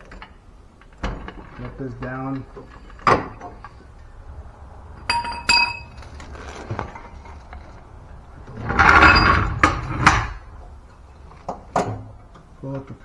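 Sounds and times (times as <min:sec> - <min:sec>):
metal rattling clatter: 0:00.0 - 0:13.0
metal parts clinking: 0:05.0 - 0:10.5.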